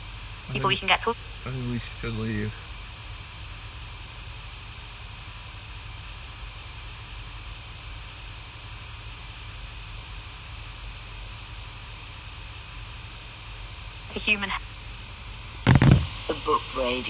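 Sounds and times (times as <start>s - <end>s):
electronic hiss: 15.7s - 16.3s.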